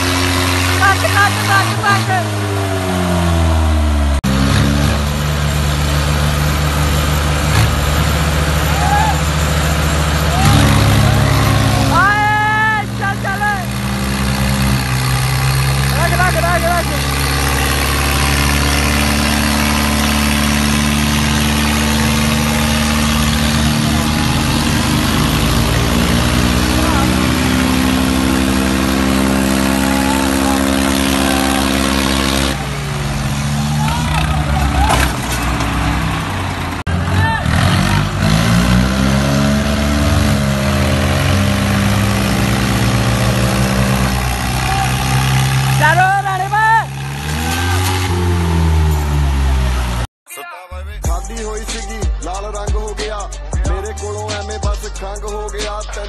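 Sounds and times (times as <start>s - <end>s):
tractor engine running: 0.0s - 50.1s.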